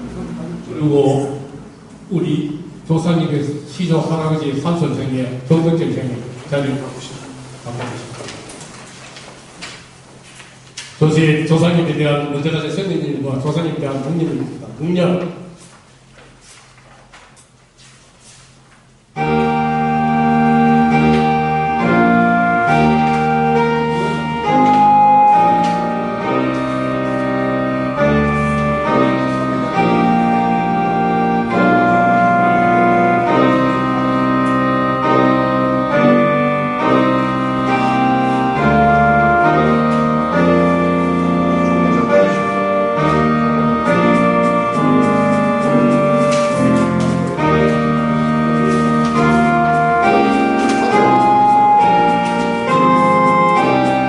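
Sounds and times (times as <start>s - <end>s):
slow organ-like keyboard chords: 0.0s - 5.7s, 19.0s - 54.0s.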